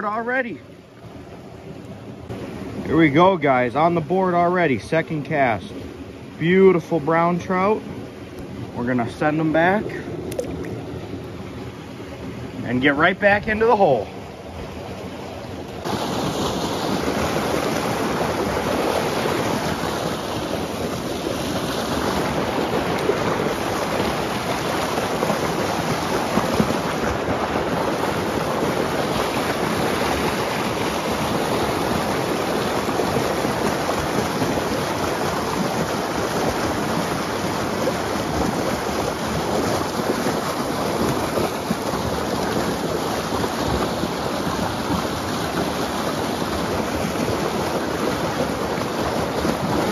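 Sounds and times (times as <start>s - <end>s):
river water rushing: 0.0s - 49.9s.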